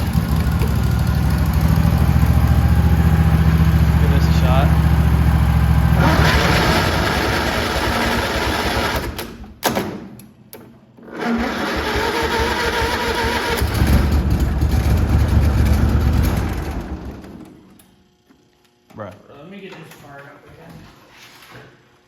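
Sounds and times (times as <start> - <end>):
mower engine cranking: 5.4 - 9.4, 11.0 - 17.4.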